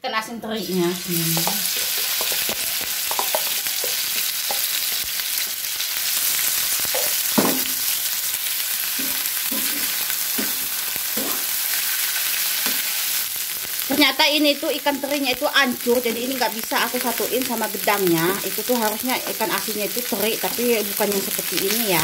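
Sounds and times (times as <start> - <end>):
fish sizzling in oil: 0.6 - 22.0
metal spatula scraping: 9.0 - 11.6.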